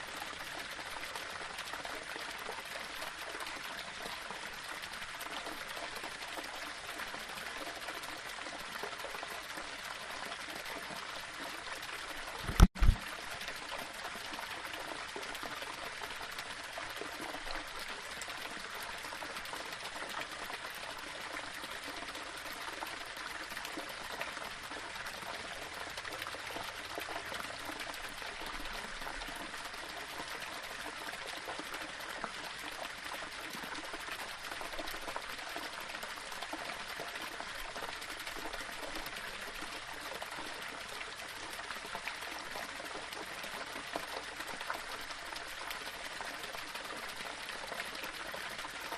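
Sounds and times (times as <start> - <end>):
water splashing over rocks: 12.4 - 13.4.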